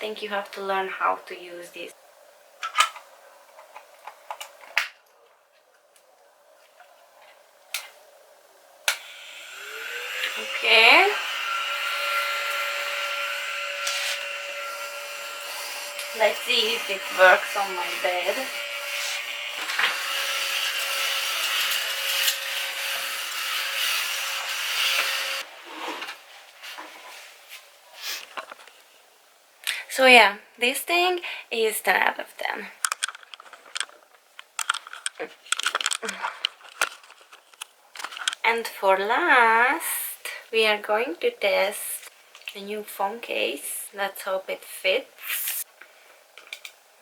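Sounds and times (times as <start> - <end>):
mini vacuum cleaner whining: 9.0 - 25.5
faint handling sounds: 32.8 - 38.5.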